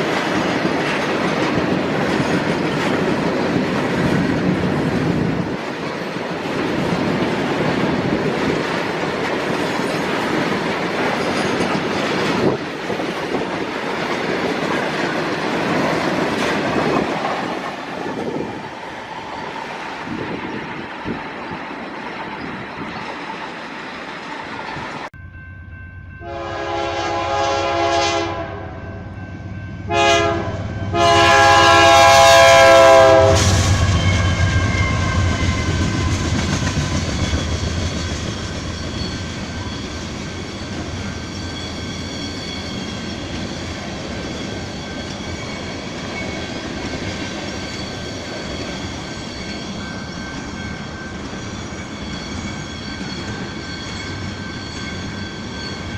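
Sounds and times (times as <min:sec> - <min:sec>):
train wagons rolling: 0:00.0 - 0:25.1, 0:31.6 - 0:55.9
locomotive horn blasts: 0:26.2 - 0:29.0, 0:29.8 - 0:35.4.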